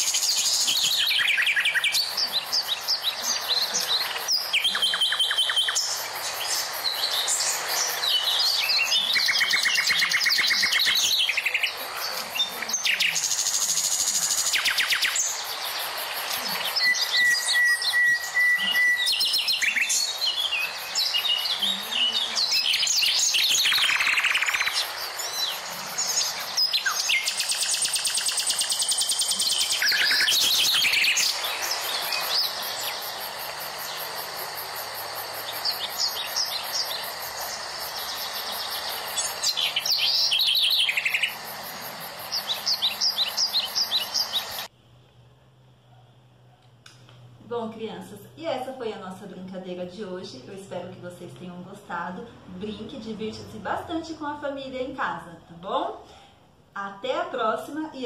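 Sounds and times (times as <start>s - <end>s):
birds chirping and singing: 0.0s - 44.7s.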